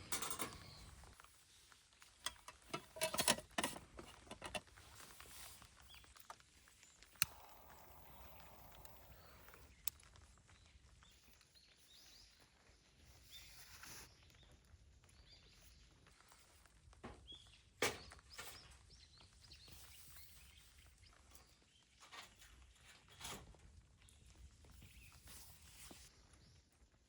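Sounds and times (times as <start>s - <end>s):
wood fire crackling and popping: 3.8s - 12.9s.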